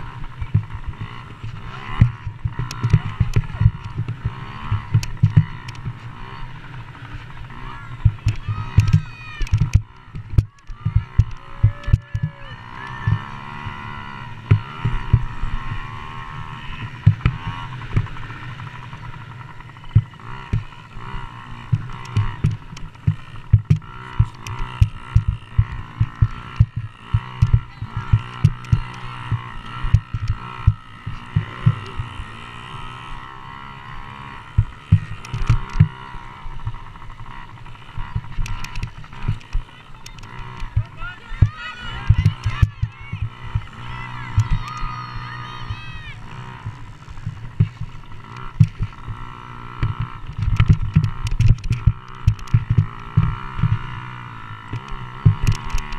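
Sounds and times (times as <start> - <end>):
dirt bike engines droning: 0.0 - 55.9
sharp low thumps: 8.0 - 12.3, 21.7 - 32.1.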